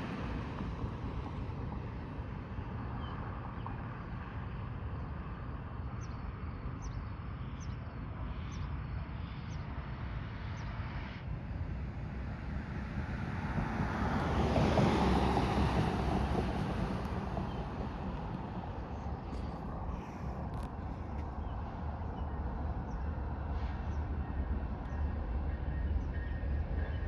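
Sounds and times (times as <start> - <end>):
diesel locomotives rumbling: 10.8 - 27.0.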